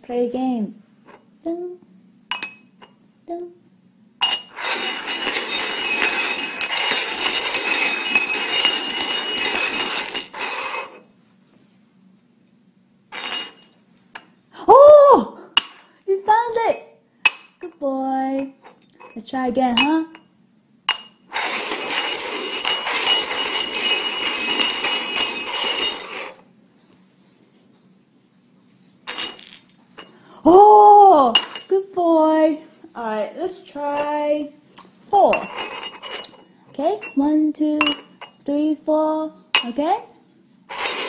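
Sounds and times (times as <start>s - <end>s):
cups clinking and clattering: 2.3s - 3.0s, 4.2s - 11.0s, 13.1s - 14.4s, 15.6s - 16.0s, 19.8s - 20.3s, 20.9s - 26.4s, 29.1s - 30.2s, 31.3s - 31.8s, 35.3s - 38.4s, 39.6s - 39.8s, 40.7s - 41.0s
cups clinking on a hard table: 4.2s - 10.9s, 15.6s - 15.9s, 31.3s - 31.7s, 37.0s - 38.4s.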